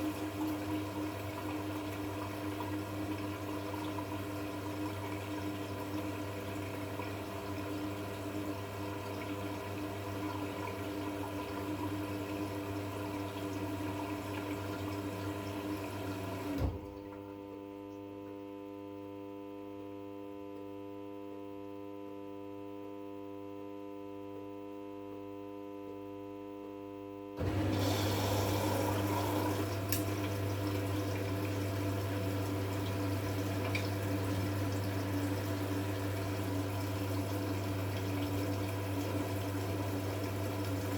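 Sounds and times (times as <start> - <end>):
water rushing into washing machine: 0.0 - 17.7, 27.4 - 40.9.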